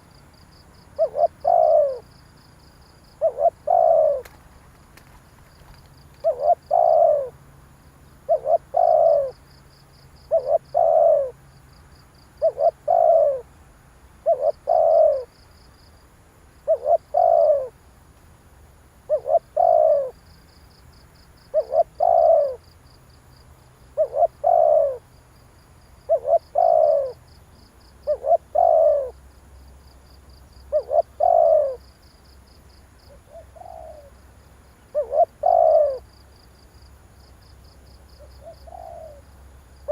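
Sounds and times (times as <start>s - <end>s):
dove cooing: 0.9s - 2.1s, 3.1s - 4.6s, 5.7s - 7.4s, 8.2s - 9.4s, 10.2s - 11.4s, 12.4s - 13.5s, 14.2s - 15.3s, 16.6s - 17.8s, 19.1s - 20.2s, 21.5s - 22.6s, 24.0s - 25.0s, 26.0s - 27.2s, 28.0s - 29.2s, 30.7s - 31.9s, 33.1s - 34.2s, 34.9s - 36.1s, 38.2s - 39.3s.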